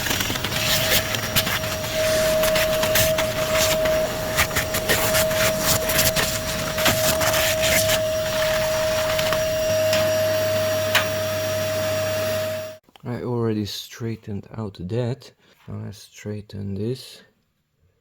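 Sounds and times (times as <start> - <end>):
small motor whining: 0.0 - 12.8.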